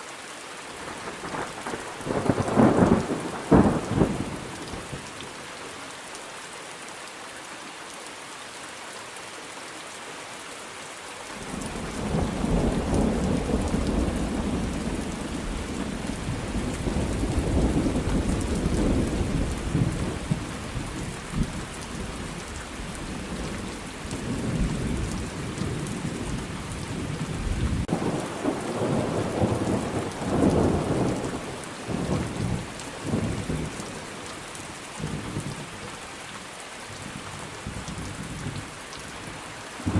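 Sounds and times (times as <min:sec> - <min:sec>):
steady rain: 0:00.0 - 0:39.9
thunder rumbling: 0:11.7 - 0:22.4, 0:23.1 - 0:33.8.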